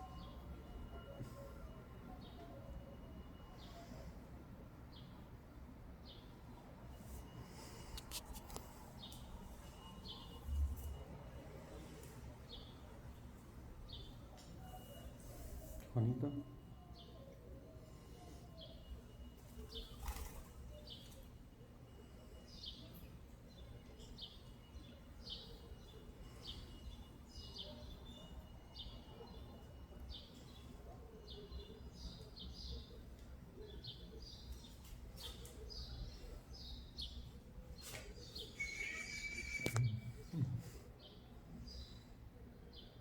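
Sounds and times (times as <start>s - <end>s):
outdoor background noise: 0.0s - 43.0s
small birds chirping: 11.7s - 15.2s, 16.0s - 40.4s.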